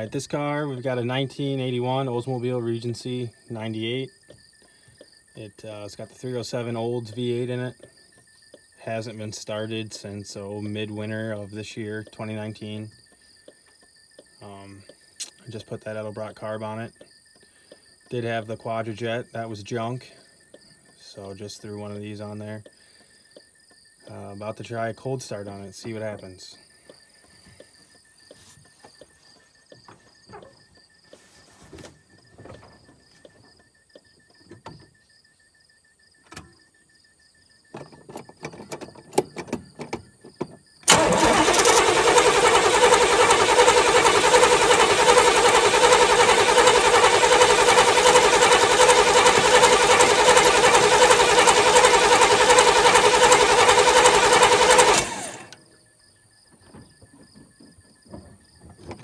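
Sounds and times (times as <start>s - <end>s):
car starter cranking engine: 40.8s - 55.6s.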